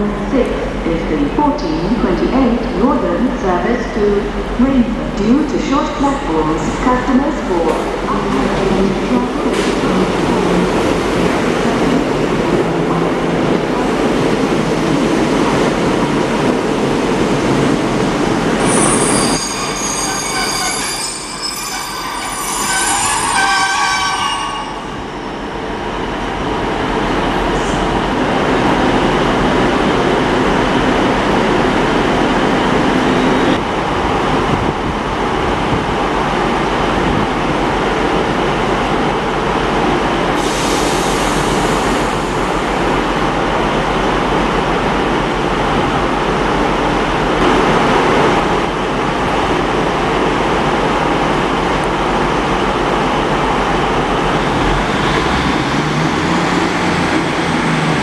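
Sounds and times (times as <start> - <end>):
rail vehicle rumble: 0.0 - 58.0
train wheels squealing: 18.6 - 25.0.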